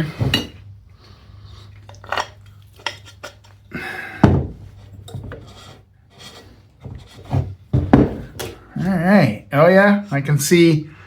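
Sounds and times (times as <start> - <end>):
rubbing scrape: 4.7 - 7.6.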